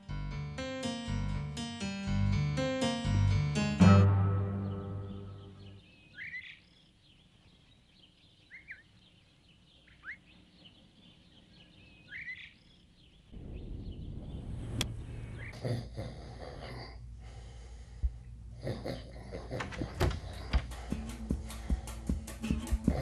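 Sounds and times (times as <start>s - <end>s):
faint bird chirps: 4.6s - 15.6s.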